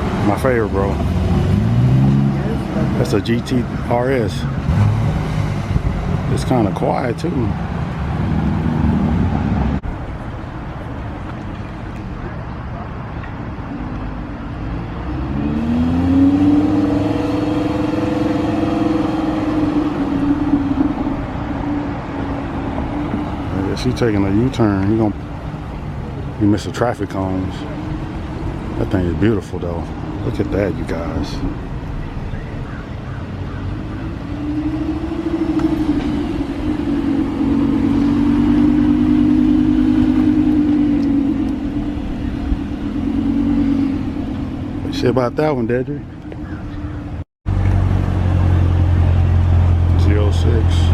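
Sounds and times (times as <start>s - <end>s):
sports car engine accelerating: 0.0s - 10.0s, 13.7s - 50.9s
low rumble: 33.9s - 50.0s.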